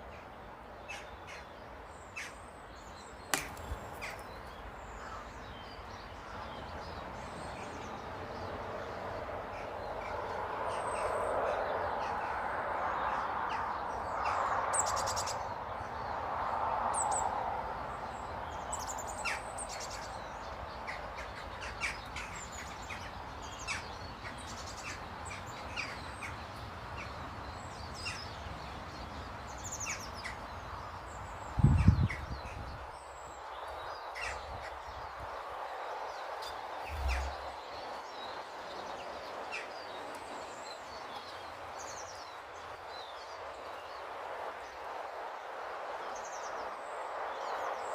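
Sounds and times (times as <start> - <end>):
small birds chirping: 0.0 - 47.9
broad rushing noise: 34.0 - 39.5.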